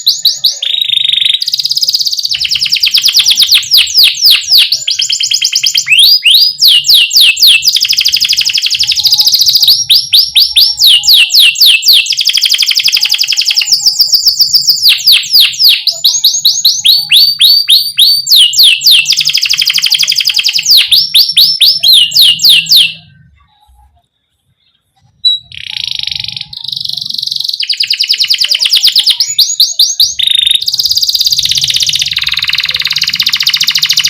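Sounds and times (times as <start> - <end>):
canary singing trills: 0.0 - 34.0.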